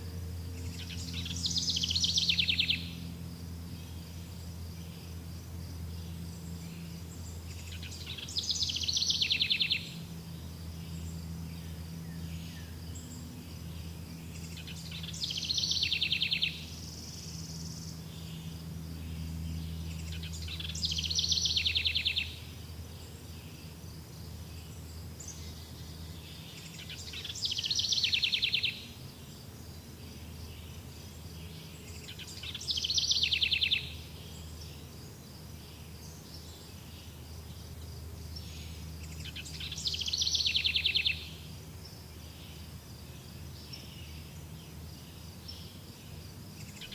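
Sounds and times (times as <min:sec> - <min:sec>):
bird singing trilled phrase: 0:00.6 - 0:03.0, 0:19.7 - 0:22.4.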